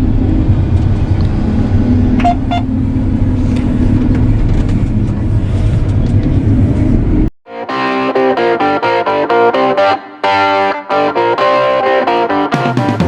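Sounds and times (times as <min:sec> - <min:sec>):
diesel machine engine humming: 0:00.0 - 0:07.3
short high beeps: 0:02.2 - 0:02.7.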